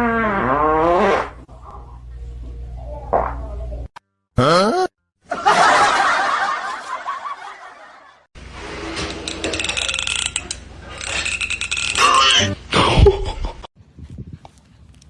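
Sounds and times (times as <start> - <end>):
people laughing: 5.3 - 8.2.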